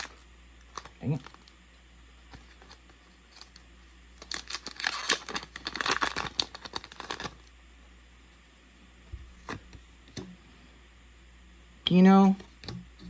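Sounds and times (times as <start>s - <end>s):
foil wrapper tearing and crinkling: 0.0s - 1.5s, 2.4s - 7.5s.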